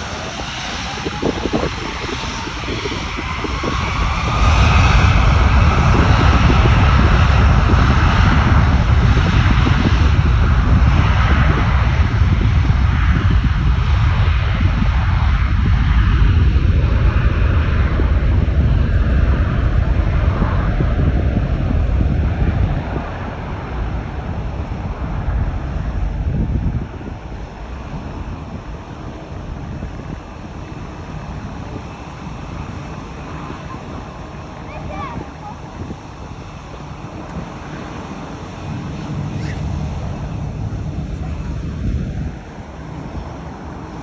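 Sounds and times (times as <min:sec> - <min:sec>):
jet engine whine rising: 0:00.0 - 0:44.0
jet engines deep rumble: 0:00.0 - 0:44.0.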